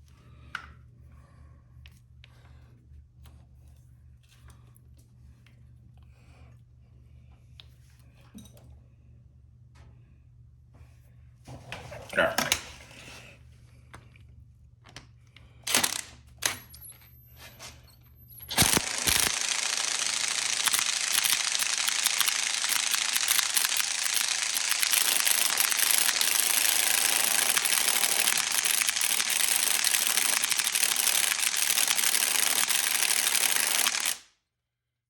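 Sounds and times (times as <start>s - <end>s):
impact wrench hammering: 18.5s - 34.2s.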